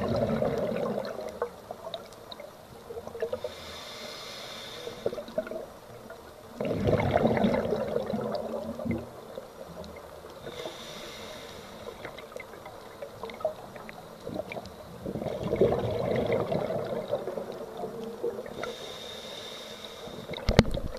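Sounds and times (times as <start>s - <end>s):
exhaled bubbles rushing: 0.0s - 1.5s, 6.6s - 9.3s, 13.2s - 18.6s
faint clicks: 0.4s - 6.4s, 8.3s - 14.9s, 16.8s - 20.9s
regulator inhale hiss: 3.3s - 5.5s, 10.4s - 12.4s, 18.4s - 20.6s.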